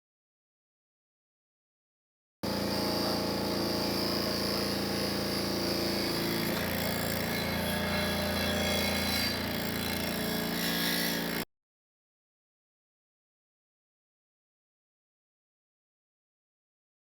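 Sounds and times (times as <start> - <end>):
electric power tool motor: 2.4 - 11.5.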